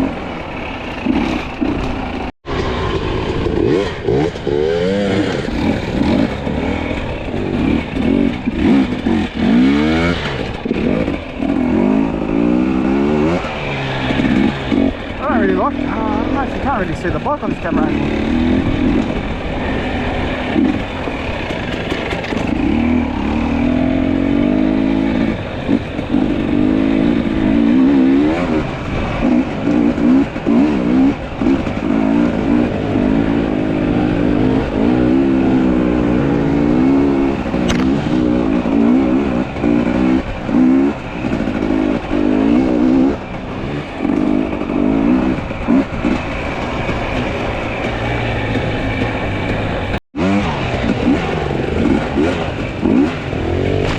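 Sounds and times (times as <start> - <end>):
two-stroke motorcycle engine revving: 0.0 - 53.9.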